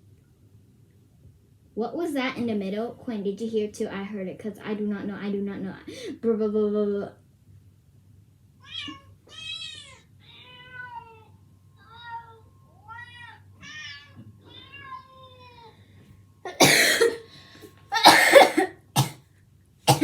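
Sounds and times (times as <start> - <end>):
cat meowing: 8.6 - 15.7
person coughing: 16.5 - 17.3, 18.0 - 19.2.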